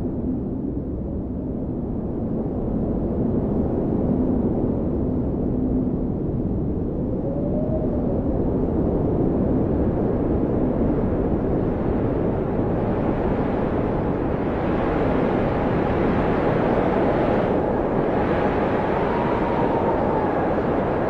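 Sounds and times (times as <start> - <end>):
blizzard wind rushing: 0.0 - 21.0
howling wind whistle: 6.5 - 11.0, 12.0 - 21.0.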